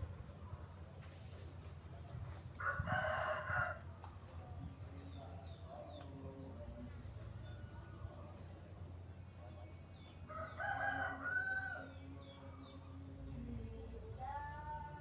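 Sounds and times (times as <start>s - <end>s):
rooster crowing: 2.6s - 3.8s, 10.3s - 12.0s.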